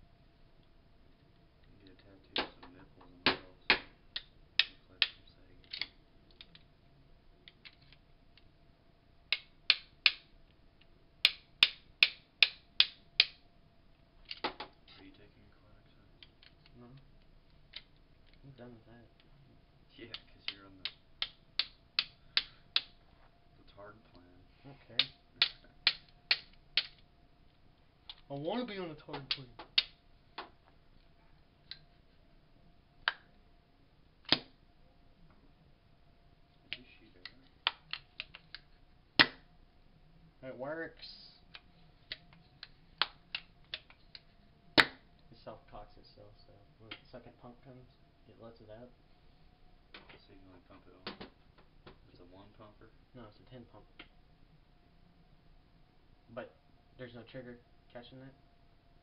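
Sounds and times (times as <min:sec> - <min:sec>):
faint steady hum: 0:00.0 - 0:59.0
sharp hard clicks: 0:03.3 - 0:06.7, 0:20.0 - 0:23.0, 0:24.9 - 0:27.0, 0:29.1 - 0:30.6, 0:34.2 - 0:34.6.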